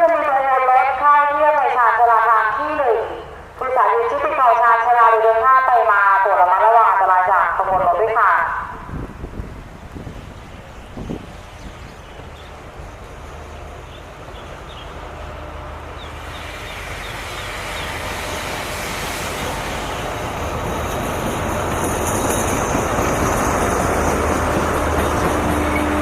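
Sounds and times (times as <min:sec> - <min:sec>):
train rolling in: 0:08.6 - 0:26.0.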